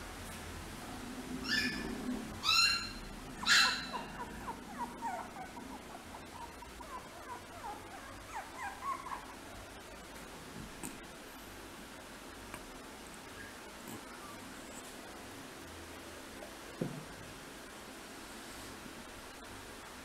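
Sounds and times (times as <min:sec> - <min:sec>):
puppy whimpering squeaks: 0:01.4 - 0:09.4
puppy yelping: 0:01.4 - 0:09.7.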